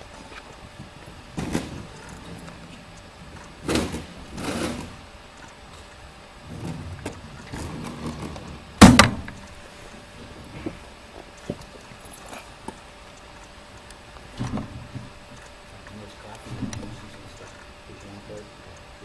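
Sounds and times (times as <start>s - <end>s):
faint clicks and knocks: 0.0s - 18.9s
loud thump: 8.8s - 9.4s.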